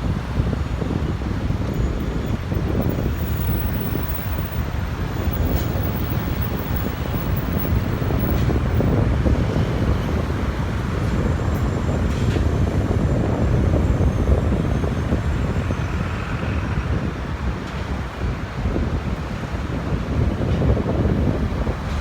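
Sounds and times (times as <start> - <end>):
jet engines rumbling: 0.0 - 11.4
wind buffeting microphone: 0.0 - 22.0.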